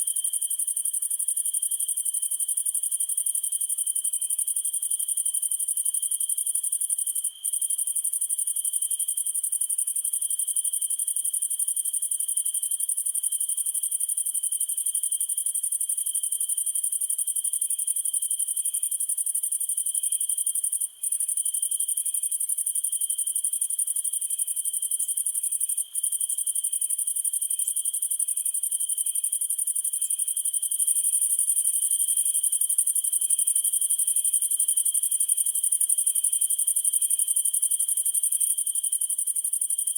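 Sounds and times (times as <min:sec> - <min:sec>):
insect chirping slowly: 0:00.0 - 0:39.9.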